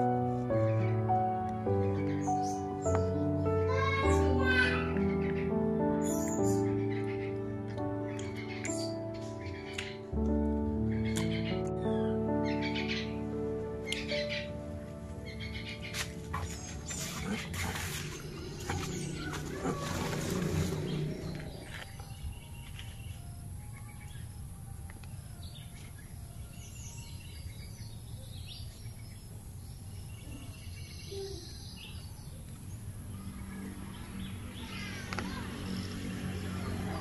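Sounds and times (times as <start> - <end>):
high bird chirps: 5.2 - 7.4
low hum: 14.5 - 22.4.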